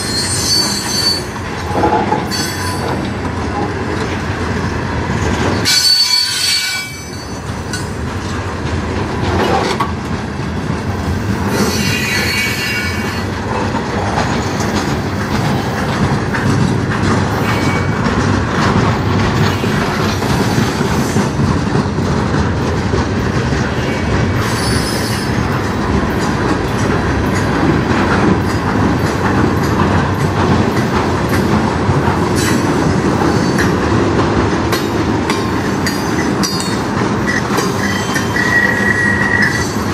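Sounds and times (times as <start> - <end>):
train wheels rumbling on rail: 0.0 - 39.9
wheel squeal: 24.4 - 25.3, 37.8 - 39.8.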